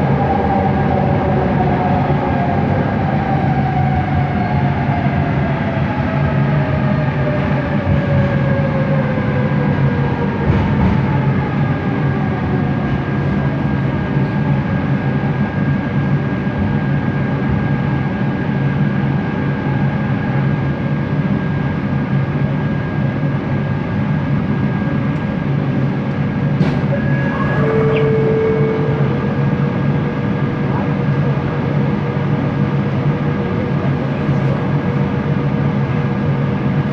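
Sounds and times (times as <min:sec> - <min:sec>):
constant motor whine: 0:00.0 - 0:36.9
metro train rumble: 0:00.0 - 0:36.9
falling pitch whine: 0:25.9 - 0:32.9.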